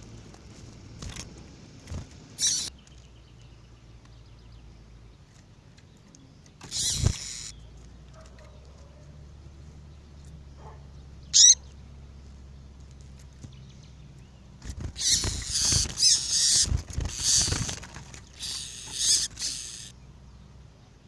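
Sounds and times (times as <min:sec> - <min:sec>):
short sharp bird calls: 0:02.4 - 0:02.8, 0:11.3 - 0:11.7, 0:15.0 - 0:20.0.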